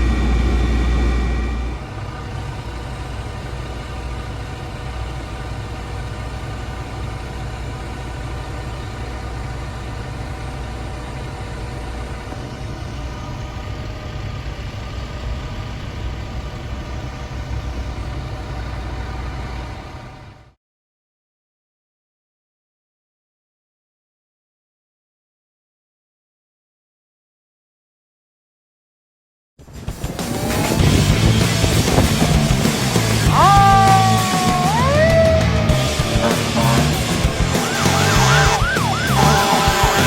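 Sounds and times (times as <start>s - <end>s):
diesel engine running: 0.0s - 20.6s, 29.7s - 40.0s.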